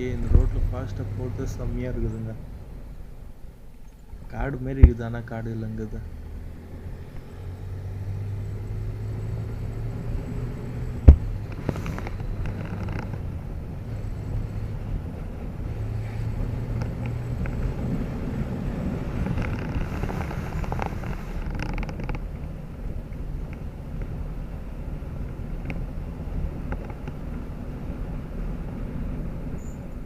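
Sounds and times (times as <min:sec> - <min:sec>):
wind noise: 0:06.2 - 0:30.0.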